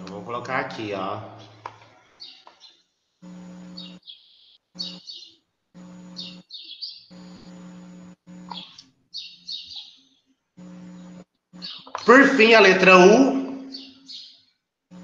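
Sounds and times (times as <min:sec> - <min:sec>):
low electrical hum: 0:00.0 - 0:15.0
bird chirping: 0:02.2 - 0:02.9, 0:03.7 - 0:05.4, 0:06.0 - 0:07.4, 0:08.4 - 0:10.3, 0:11.6 - 0:14.5.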